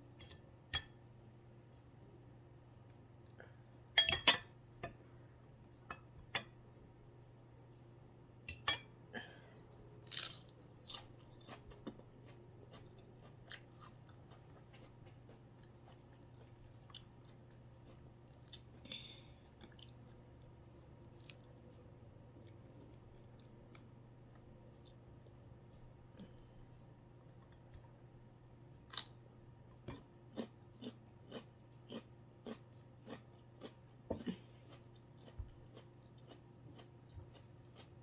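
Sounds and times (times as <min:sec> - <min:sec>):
person chewing crunchy food: 0:09.6 - 0:26.0, 0:29.8 - 0:38.0.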